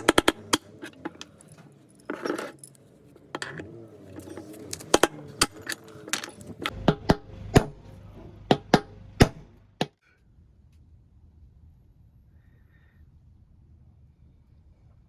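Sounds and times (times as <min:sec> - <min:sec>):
hand tools knocking on metal: 0:06.7 - 0:09.5.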